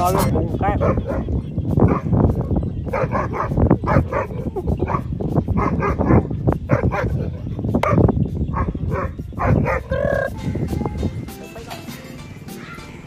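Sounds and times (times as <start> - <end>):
puppy barking and yipping: 2.9 - 10.2.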